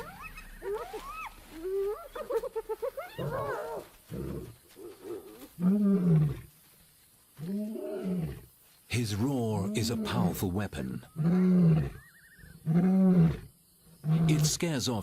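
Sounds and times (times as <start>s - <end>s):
hyenas yelping and whooping: 0.0s - 5.2s.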